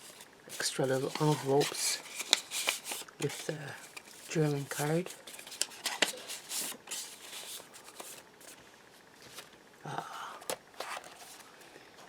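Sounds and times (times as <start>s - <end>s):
paper rustling: 0.0s - 8.6s, 10.8s - 11.6s.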